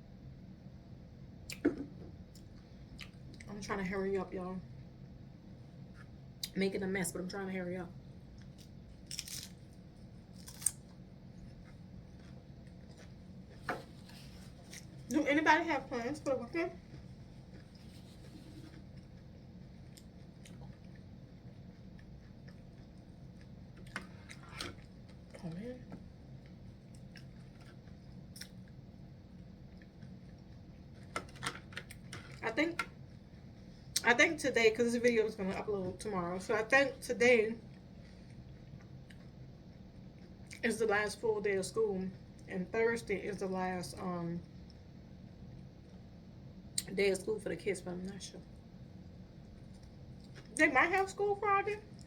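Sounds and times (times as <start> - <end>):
low room hum: 0.0 - 52.0
food crunching and clicks: 8.3 - 13.6, 18.8 - 25.5, 26.3 - 28.8, 49.5 - 51.1
person chewing crunchy chips: 8.4 - 10.9.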